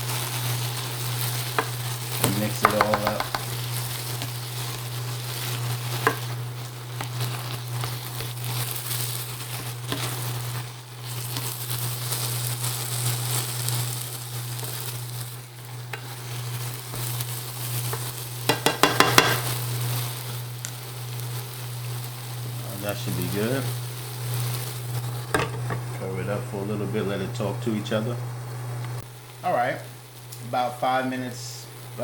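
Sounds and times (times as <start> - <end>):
beans sizzling in a pan: 0.0 - 32.0
utensil knocking against pan: 2.6 - 3.6, 18.5 - 19.4.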